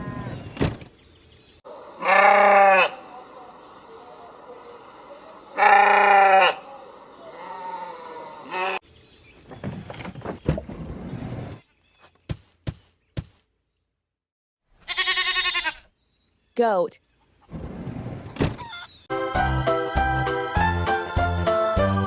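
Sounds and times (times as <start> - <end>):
sheep bleating: 2.0 - 3.1, 5.6 - 8.8, 14.8 - 15.9.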